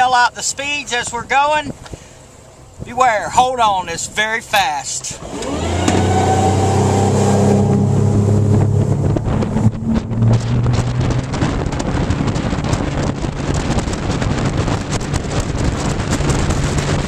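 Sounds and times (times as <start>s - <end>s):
outboard engine at full throttle: 4.3s - 17.0s
wind buffeting on microphone: 5.2s - 17.0s.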